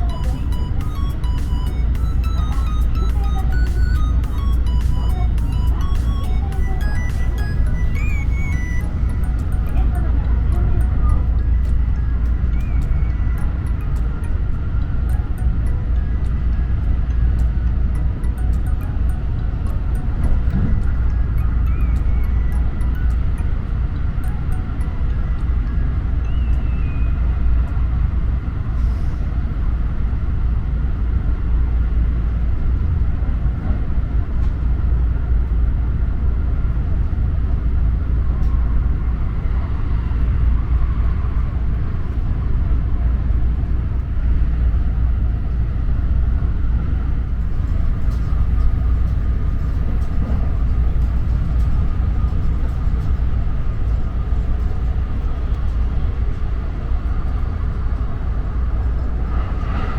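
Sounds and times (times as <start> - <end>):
faint steady whine: 0.0 - 59.9
train wheels rumbling on rails: 43.3 - 59.9.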